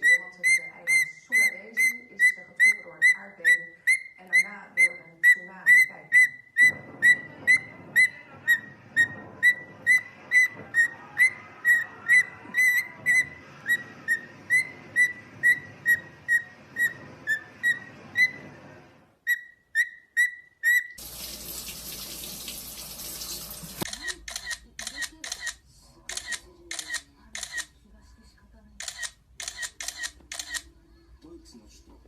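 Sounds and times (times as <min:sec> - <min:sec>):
parrot whistling: 0:00.0 - 0:21.0.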